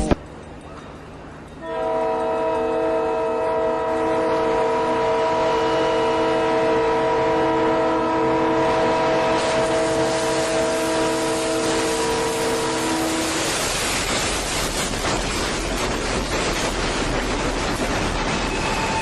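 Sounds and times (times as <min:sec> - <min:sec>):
train rumble: 0:00.0 - 0:19.0
train horn chord: 0:01.6 - 0:13.5
rushing noise: 0:09.4 - 0:19.0.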